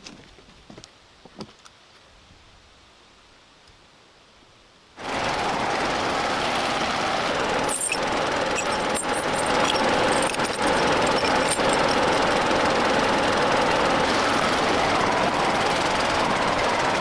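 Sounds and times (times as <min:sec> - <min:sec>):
power tool running: 0:05.0 - 0:17.0.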